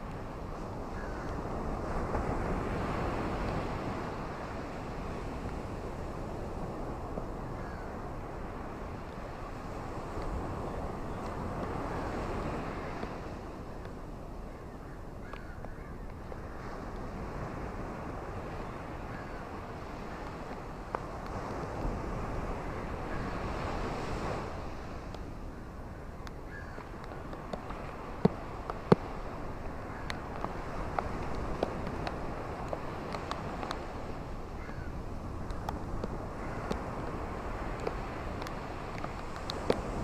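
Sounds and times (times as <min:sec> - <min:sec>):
ocean waves on shore: 0:00.0 - 0:40.0.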